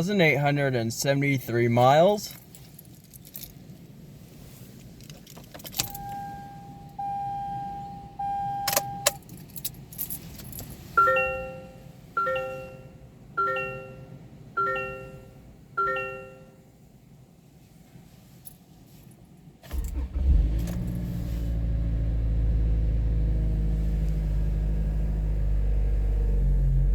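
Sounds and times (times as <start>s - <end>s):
keys jangling: 2.3s - 3.7s, 5.0s - 6.1s, 8.7s - 10.8s
car warning chime: 5.8s - 9.3s, 10.9s - 16.8s.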